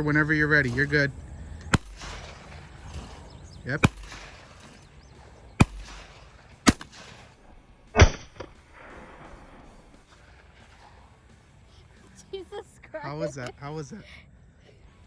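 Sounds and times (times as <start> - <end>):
shotgun blasts: 0.0 - 11.2.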